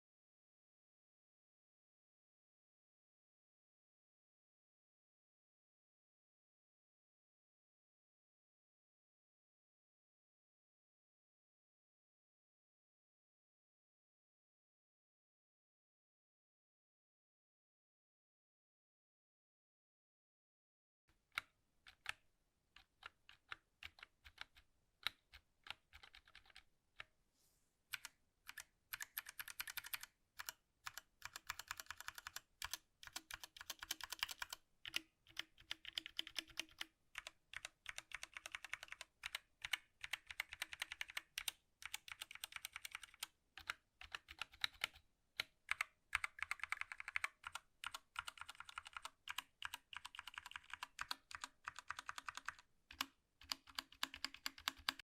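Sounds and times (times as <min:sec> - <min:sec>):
mechanical keyboard typing: 0:21.3 - 0:22.2, 0:22.8 - 0:26.7, 0:27.9 - 0:55.0.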